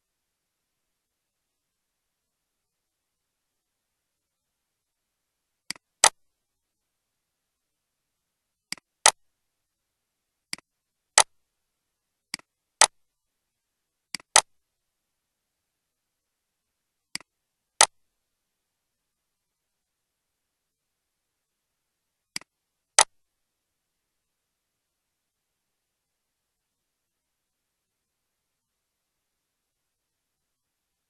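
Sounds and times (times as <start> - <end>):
paired sharp clicks: 22.3 - 23.1.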